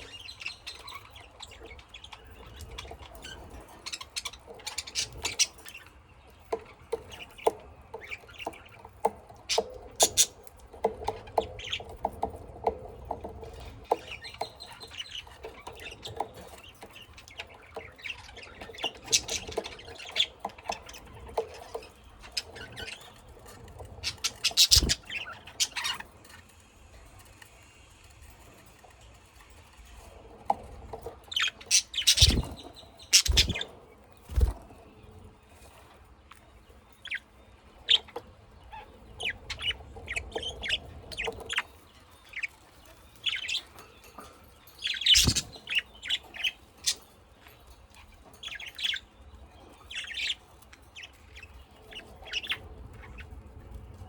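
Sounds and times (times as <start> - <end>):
light clicks and patters: 0.0 - 37.2
cage birds chirping and squawking: 0.0 - 54.0.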